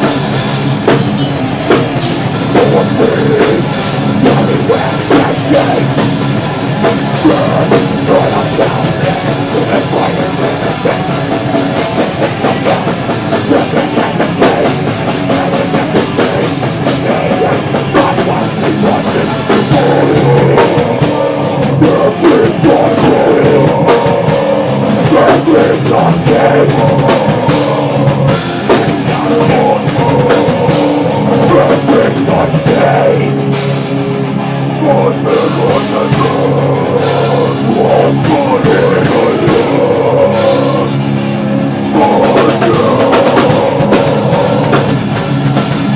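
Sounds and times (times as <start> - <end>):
metal band playing: 0.0 - 45.9.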